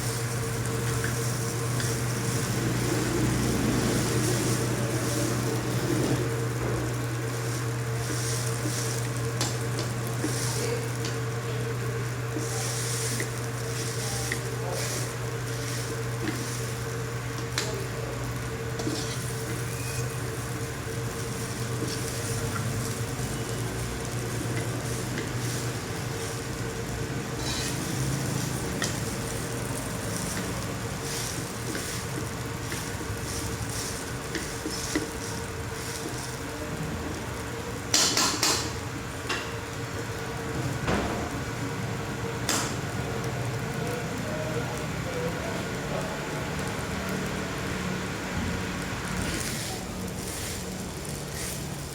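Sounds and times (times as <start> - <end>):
utensil stirring and scraping: 0.0 - 36.8, 49.2 - 51.9
rice sizzling in a pan: 0.0 - 51.9.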